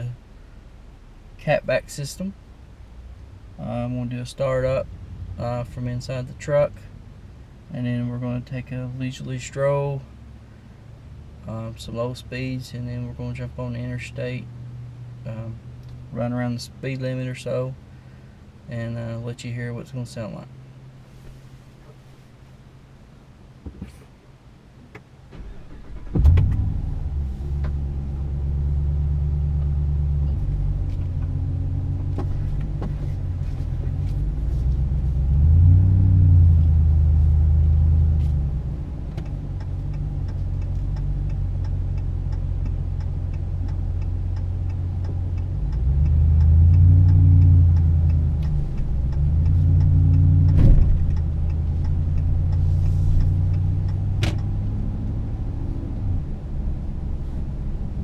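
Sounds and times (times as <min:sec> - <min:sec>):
low exhaust drone: 0:00.0 - 0:23.6, 0:25.8 - 0:58.0
engine starting: 0:25.3 - 0:26.8.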